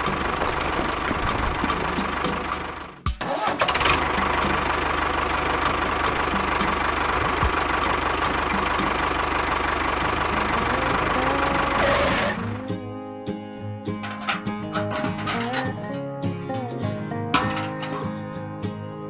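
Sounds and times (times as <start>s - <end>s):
small engine running: 0.0s - 12.8s.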